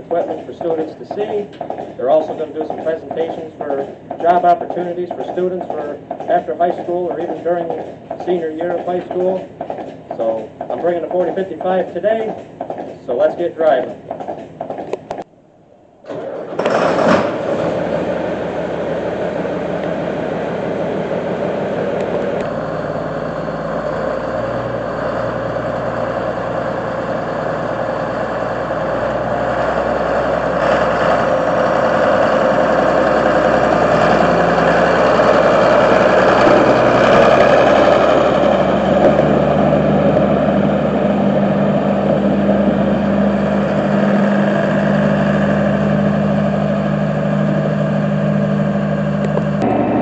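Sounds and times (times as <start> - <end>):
tractor diesel engine running: 0.0 - 15.2, 16.1 - 50.0
low hum: 14.9 - 50.0.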